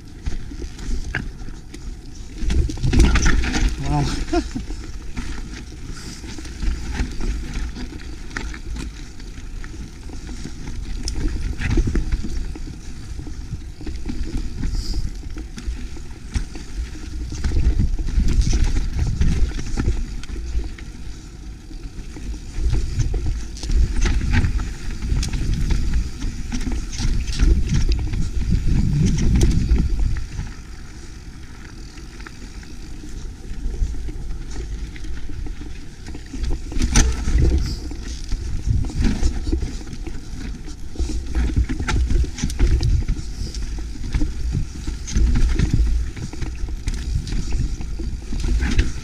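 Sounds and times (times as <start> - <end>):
bike clicks and rattles: 0.0 - 49.0
tyres rumbling over trail: 0.1 - 49.0
wind buffeting microphone: 22.7 - 30.6, 36.5 - 39.8.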